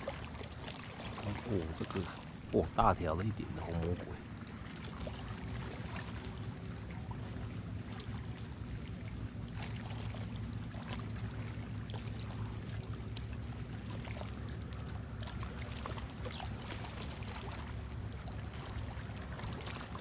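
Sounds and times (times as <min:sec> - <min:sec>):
small water splashes: 0:00.0 - 0:20.0
waves lapping against bank: 0:00.0 - 0:20.0
steady low drone: 0:01.1 - 0:15.7.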